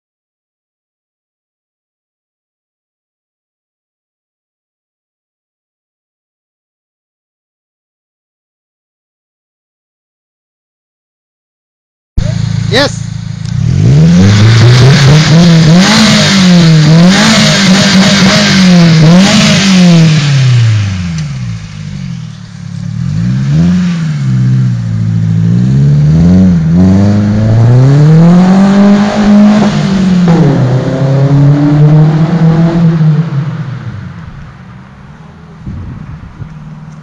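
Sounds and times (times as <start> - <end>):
car engine revving: 12.2 - 37.0.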